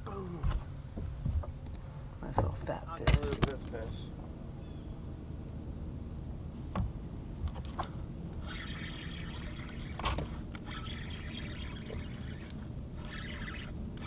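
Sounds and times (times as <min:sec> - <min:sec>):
water trickling and splashing: 0:08.4 - 0:13.7.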